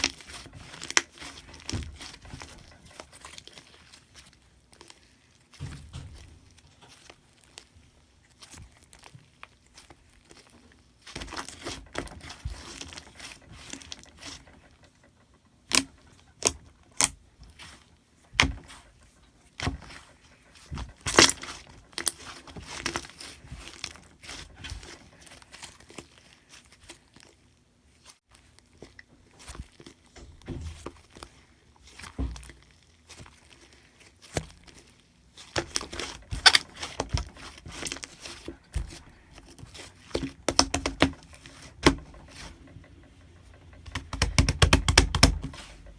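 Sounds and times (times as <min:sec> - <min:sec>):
material crinkling and tearing: 0:00.0 - 0:45.9
sharp clicks and taps: 0:40.1 - 0:45.9.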